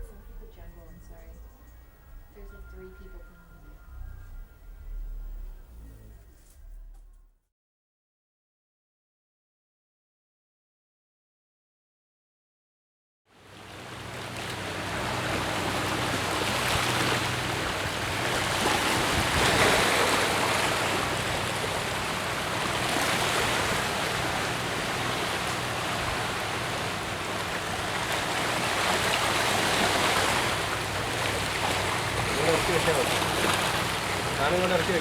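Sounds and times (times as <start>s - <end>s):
faint low hum: 0.0s - 7.3s
rushing water like waves: 13.3s - 35.0s.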